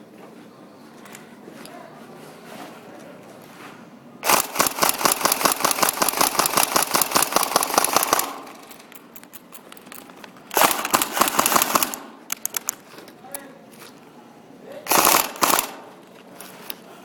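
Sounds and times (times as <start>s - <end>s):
airsoft gun firing full-auto: 4.2s - 8.8s, 10.5s - 12.3s, 14.9s - 16.0s.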